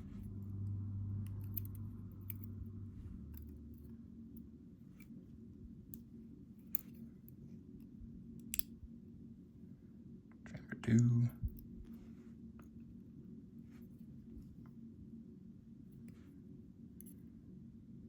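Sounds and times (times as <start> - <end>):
low steady hum: 0.0 - 18.0
tweezers clicking on lock pins: 1.2 - 3.9, 8.4 - 8.7.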